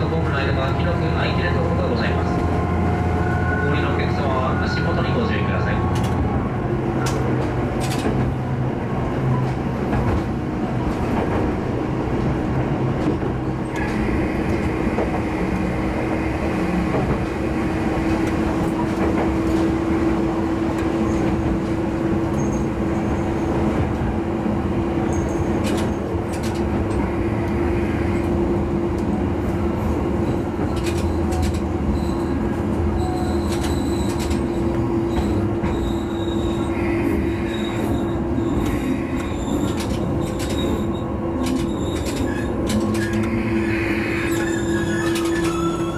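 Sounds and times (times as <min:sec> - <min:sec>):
railcar engine drone: 0:00.0 - 0:45.9
wheel and rail noise: 0:06.8 - 0:45.9
high wheel squeal: 0:30.7 - 0:45.9.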